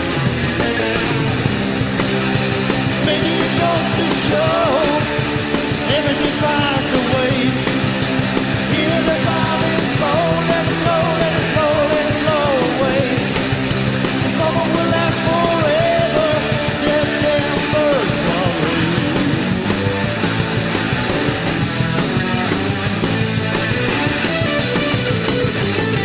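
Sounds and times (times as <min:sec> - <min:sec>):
rock band with guitar: 0:00.0 - 0:26.0
lead singer singing: 0:02.9 - 0:19.5.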